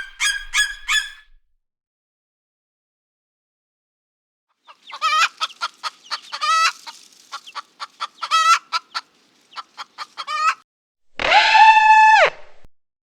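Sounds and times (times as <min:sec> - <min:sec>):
chicken cackling: 0:00.0 - 0:01.2, 0:04.6 - 0:10.6, 0:11.2 - 0:12.3
chicken clucking: 0:04.6 - 0:10.6.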